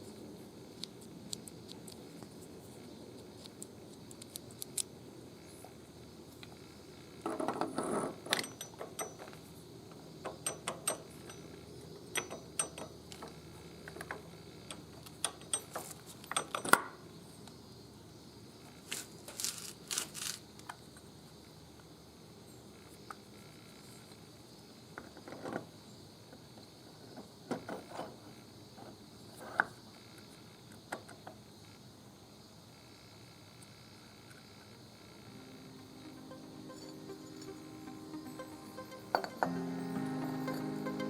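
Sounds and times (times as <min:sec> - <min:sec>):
metal tools clinking: 0:08.3 - 0:09.4, 0:10.3 - 0:13.0, 0:14.0 - 0:16.8, 0:36.1 - 0:39.7.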